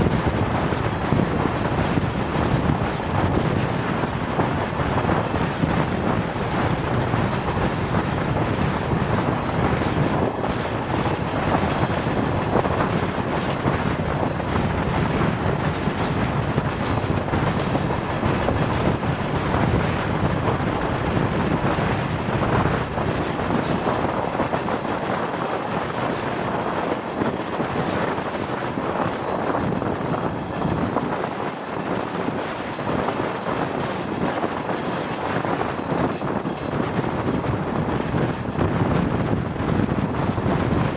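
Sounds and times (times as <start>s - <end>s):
train rumbling along track: 0.0s - 40.9s
wind noise on microphone: 0.0s - 40.9s.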